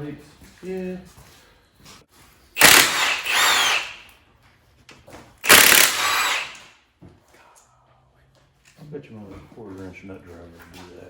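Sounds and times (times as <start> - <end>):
power tool motor whine: 2.6 - 4.0, 5.4 - 6.7.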